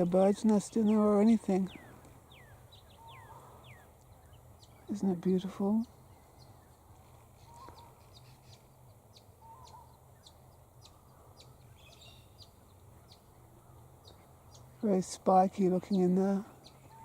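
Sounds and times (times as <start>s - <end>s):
distant bird calls: 0.0s - 17.0s
steady low hum: 0.0s - 17.0s.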